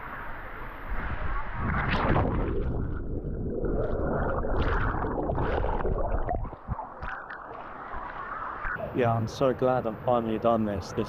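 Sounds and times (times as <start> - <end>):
muffled water gurgling and sloshing: 0.0 - 11.0.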